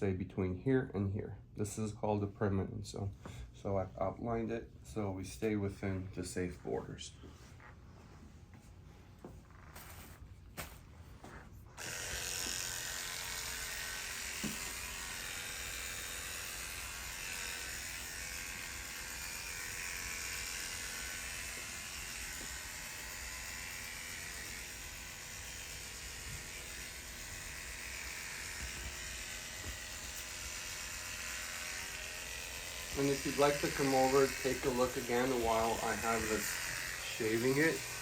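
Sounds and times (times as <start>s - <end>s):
electric hair clippers running: 11.8s - 38.0s.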